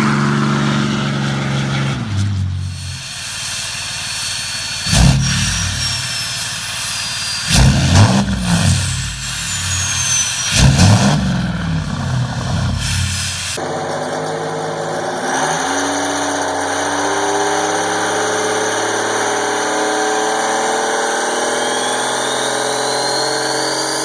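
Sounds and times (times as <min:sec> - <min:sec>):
diesel engine idling and revving: 0:00.0 - 0:24.0
turbo whistle: 0:02.5 - 0:13.6, 0:21.1 - 0:24.0.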